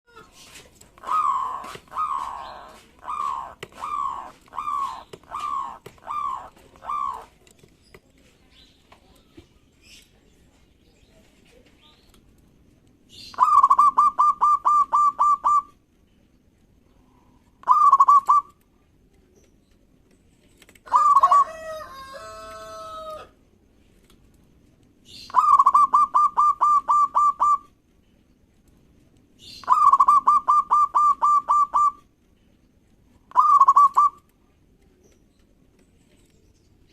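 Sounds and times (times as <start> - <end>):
doves cooing: 0.1 - 7.5, 13.3 - 15.8, 16.9 - 18.6, 25.3 - 27.8, 29.6 - 32.1, 33.3 - 34.3.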